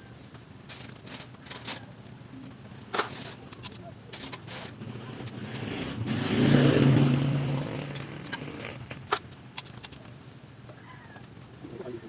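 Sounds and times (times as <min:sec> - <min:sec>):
passing vehicle engine hum: 0:04.7 - 0:09.1.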